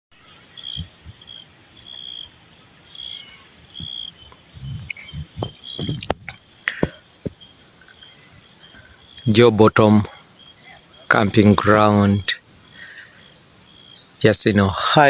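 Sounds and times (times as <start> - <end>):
cricket chirps: 0.1 - 15.0
insects droning: 0.1 - 15.0
dull thumps: 3.8 - 7.4
sharp clicks: 8.8 - 9.3.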